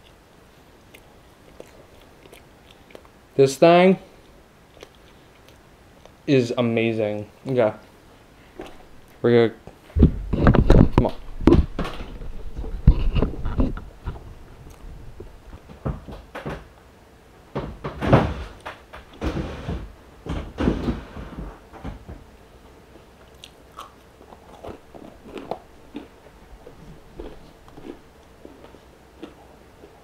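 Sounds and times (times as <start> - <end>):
person chewing and biting food: 0.8 - 3.2, 4.2 - 6.2, 23.2 - 30.0.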